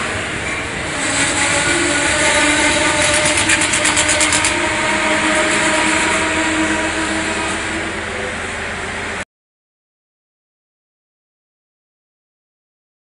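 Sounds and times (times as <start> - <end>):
train engine humming: 0.0 - 9.2.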